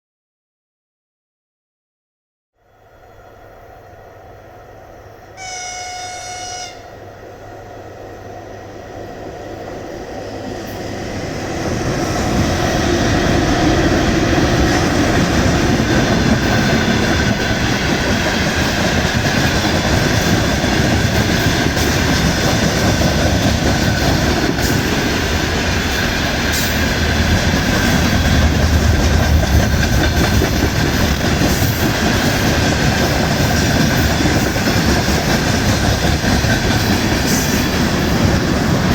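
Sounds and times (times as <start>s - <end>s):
train wheels on rails: 3.0s - 38.9s
locomotive horn blast: 5.4s - 7.0s.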